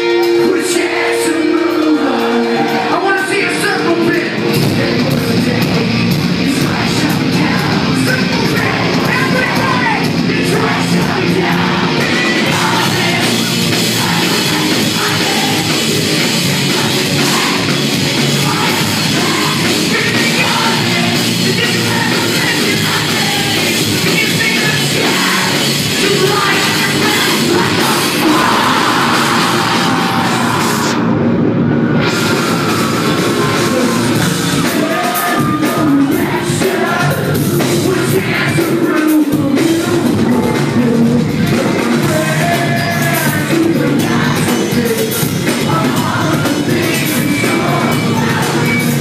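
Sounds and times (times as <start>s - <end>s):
band playing live: 0.0s - 49.0s
drums: 0.0s - 49.0s
heavy guitars: 0.0s - 49.0s
person yelling and singing: 6.6s - 13.3s.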